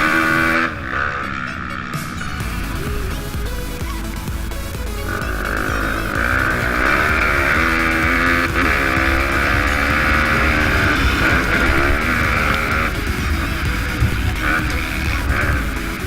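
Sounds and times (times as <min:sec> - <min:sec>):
motorbike engine revving: 0:00.0 - 0:16.0.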